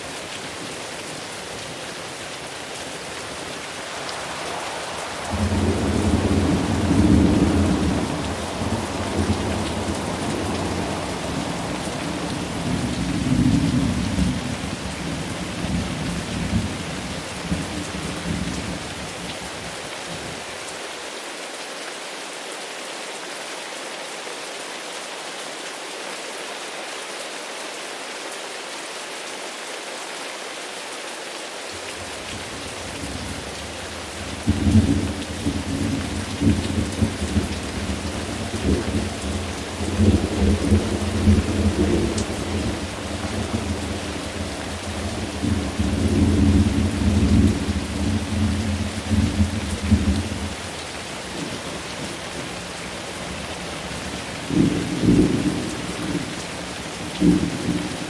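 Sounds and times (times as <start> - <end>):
heavy rain: 0.0 - 58.0
rolling thunder: 3.7 - 16.8, 34.2 - 50.6.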